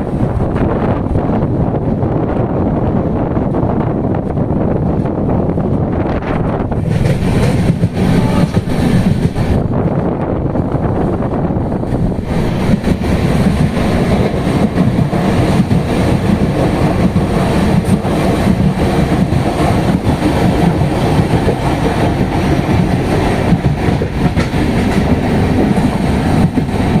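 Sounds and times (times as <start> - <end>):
train rumbling on track: 0.0 - 27.0
wheels clicking over rails: 6.3 - 9.7, 11.7 - 27.0.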